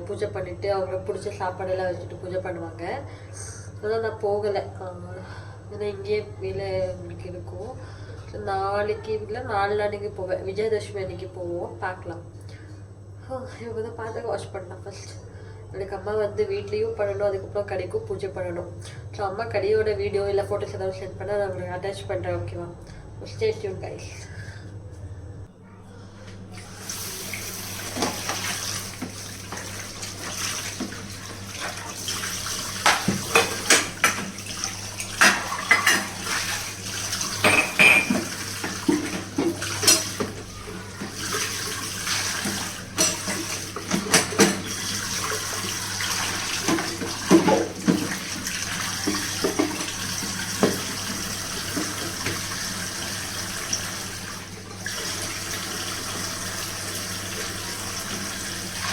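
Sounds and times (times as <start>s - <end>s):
tap water running into sink: 26.6s - 58.9s
dishes clinking and clattering: 27.9s - 45.4s, 46.0s - 48.4s, 49.0s - 52.5s.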